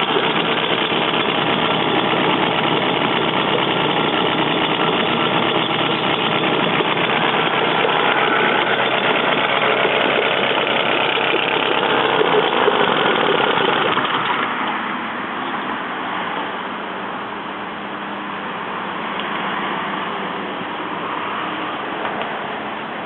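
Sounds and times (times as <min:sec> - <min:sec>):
two-stroke outboard engine running: 0:00.0 - 0:14.9.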